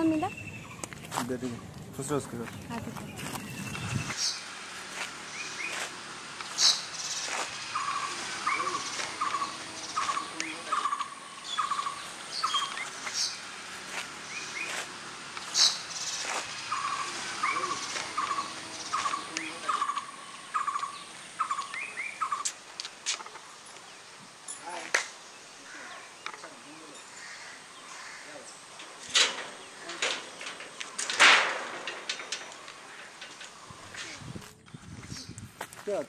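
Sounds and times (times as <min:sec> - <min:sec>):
sharp high bird chirps: 0:05.2 - 0:13.5, 0:14.2 - 0:22.6.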